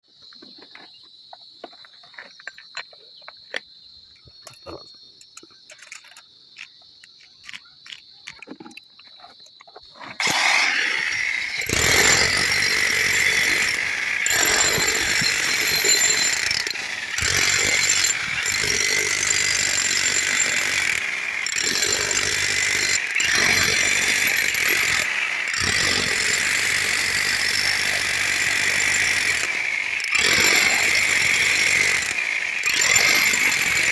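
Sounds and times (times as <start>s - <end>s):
loud power tool running: 10.2s - 33.9s.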